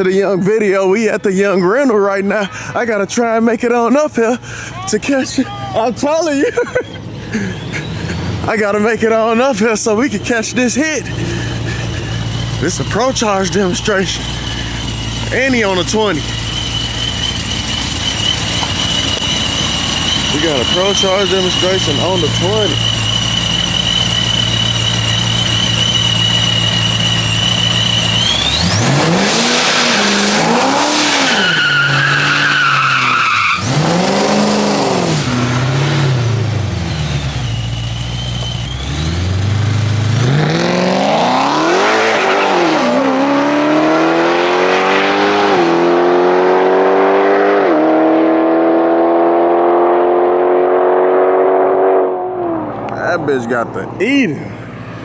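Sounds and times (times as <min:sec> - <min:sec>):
car engine idling with whine: 0:04.3 - 0:43.9, 0:52.2 - 0:55.0
car accelerating with upshifts: 0:06.9 - 0:55.0
car engine revving: 0:07.0 - 0:55.0.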